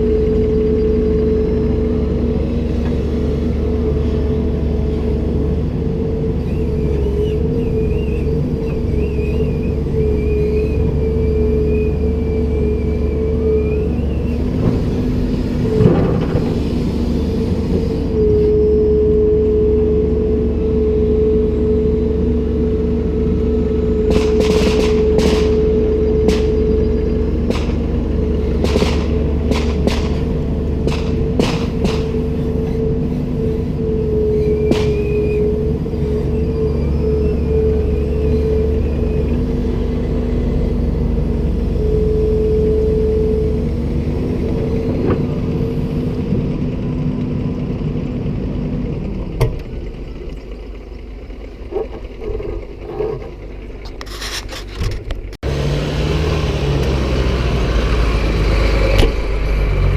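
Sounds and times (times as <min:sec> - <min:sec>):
constant whine: 0:00.0 - 0:59.9
excavator diesel engine running: 0:00.0 - 0:59.9
thin wavering high whine: 0:17.9 - 0:28.6.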